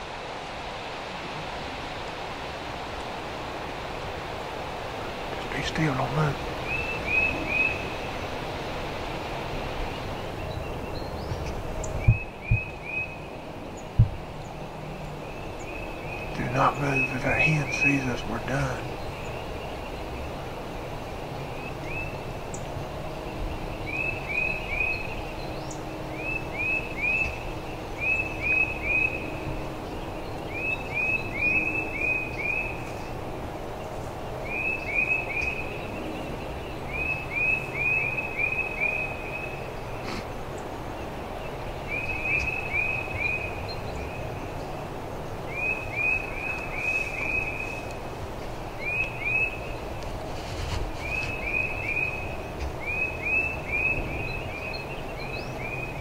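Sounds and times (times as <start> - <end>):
low background noise: 0.0 - 56.0
songbird singing whistled notes: 6.6 - 8.3, 9.8 - 20.4, 21.0 - 33.2, 34.4 - 40.2, 41.4 - 48.0, 48.7 - 50.0, 50.6 - 56.0.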